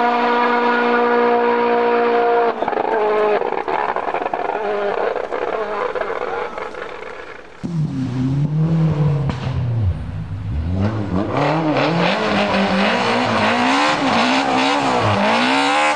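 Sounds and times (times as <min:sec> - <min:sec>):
rally car engine revving: 0:00.0 - 0:15.9.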